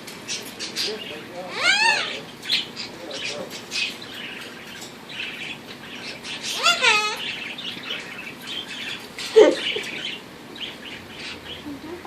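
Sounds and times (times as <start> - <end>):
birds chirping: 0.0 - 12.0
parrot loud rising call: 1.5 - 2.2.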